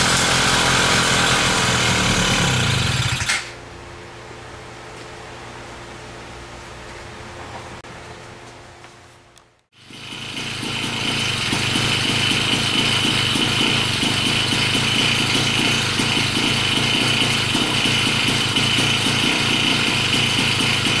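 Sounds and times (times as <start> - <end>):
small engine running steadily: 0.0 - 3.6, 9.7 - 21.0.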